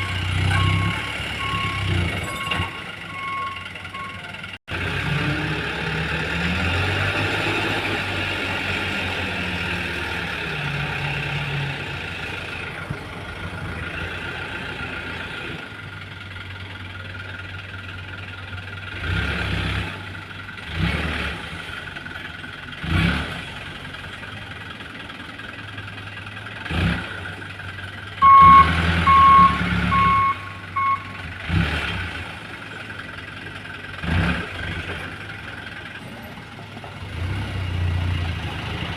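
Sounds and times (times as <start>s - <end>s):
reversing beeper: 0.0s - 4.4s, 28.2s - 31.2s
dump truck engine running: 0.0s - 38.9s.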